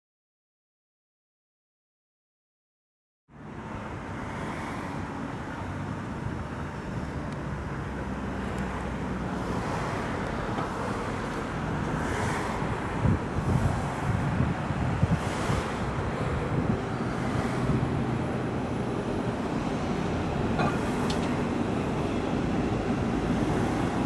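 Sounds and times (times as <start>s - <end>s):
traffic noise: 3.3s - 24.0s
wind buffeting microphone: 10.2s - 24.0s
electric train approaching: 15.8s - 24.0s.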